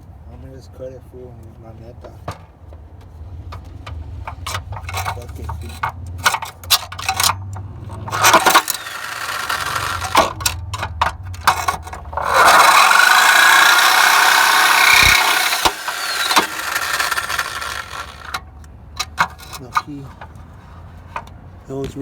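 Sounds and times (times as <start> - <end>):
clicks and knocks: 2.2 - 21.4
electric saw cutting: 7.9 - 10.6, 11.4 - 18.5.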